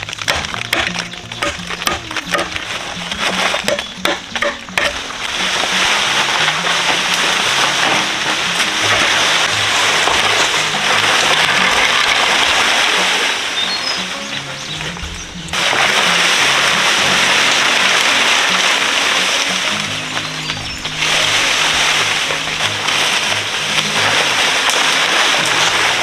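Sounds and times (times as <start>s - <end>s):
background music: 0.0s - 26.0s
splashing water: 0.0s - 26.0s.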